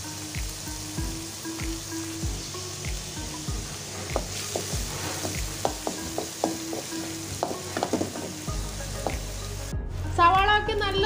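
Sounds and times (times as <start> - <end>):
food sizzling in hot oil: 0.0 - 10.2
wooden spatula knocking on pan: 4.1 - 9.2.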